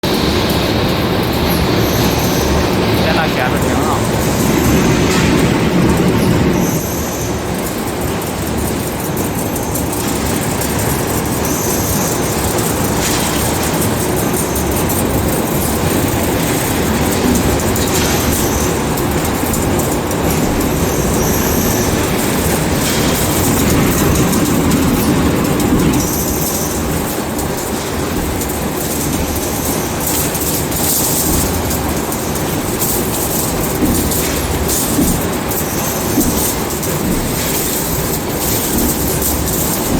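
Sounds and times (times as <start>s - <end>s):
factory machinery clatter: 0.0s - 39.9s
factory machinery rumbling: 1.5s - 7.9s.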